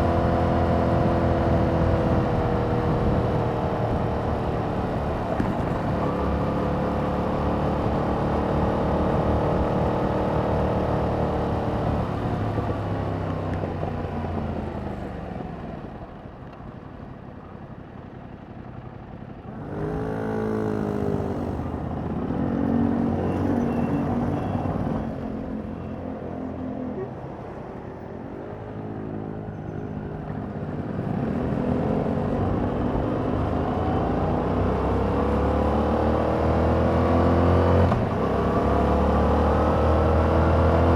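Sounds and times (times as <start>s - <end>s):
motorcycle engine accelerating: 18.7s - 25.6s, 30.8s - 40.9s.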